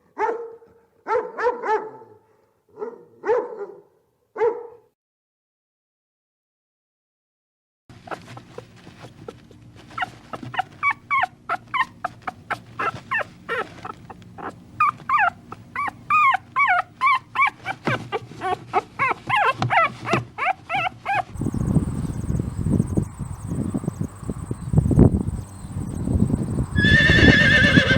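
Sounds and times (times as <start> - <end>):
dog whimpering and yipping: 9.9 - 21.4.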